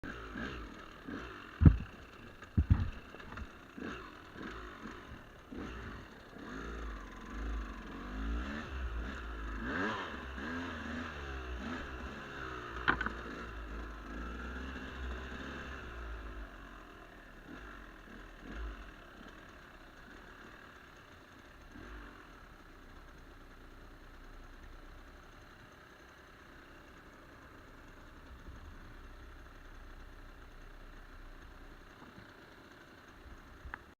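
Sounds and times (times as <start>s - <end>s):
sharp knocks: 1.6s - 1.9s, 2.6s - 3.5s, 12.8s - 13.2s.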